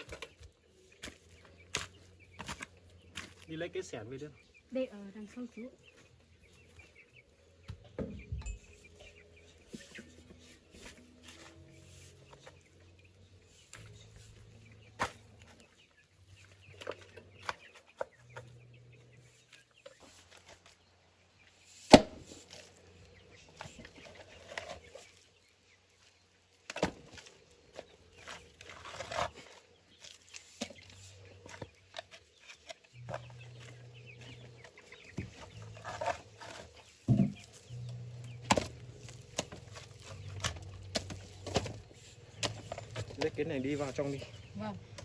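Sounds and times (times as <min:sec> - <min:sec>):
chickens clucking: 0:27.2 - 0:45.0
knocks and thumps of work: 0:35.1 - 0:43.6.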